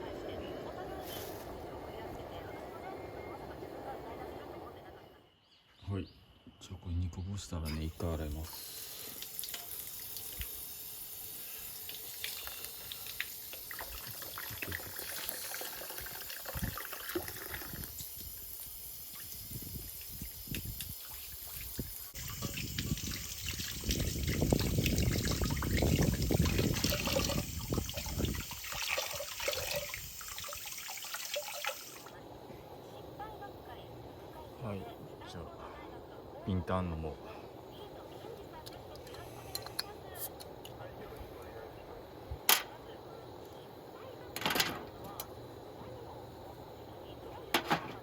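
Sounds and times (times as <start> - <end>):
water running from a tap: 7.8 - 32.2.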